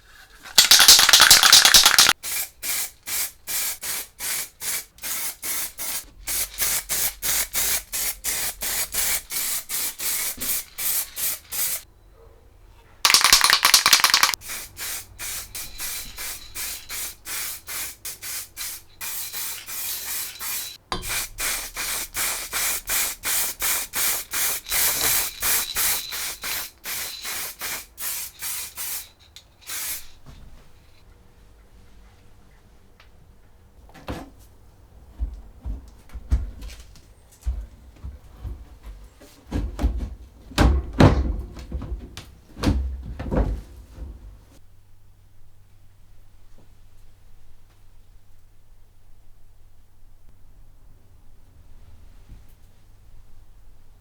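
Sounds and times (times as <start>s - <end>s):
hissing spray bursts: 0.5s - 11.8s, 13.1s - 30.2s.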